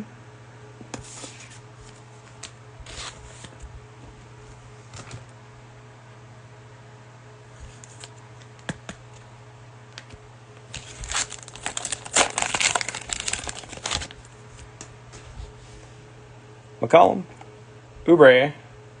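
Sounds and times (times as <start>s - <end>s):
plastic wrapper tearing and crinkling: 10.7s - 14.3s.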